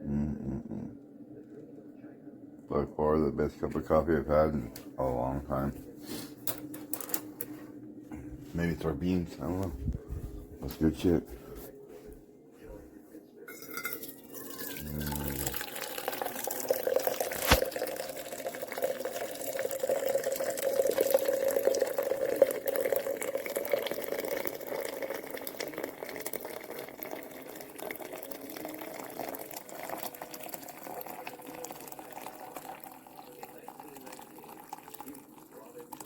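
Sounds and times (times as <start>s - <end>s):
liquid pouring into vessel: 13.5s - 36.0s.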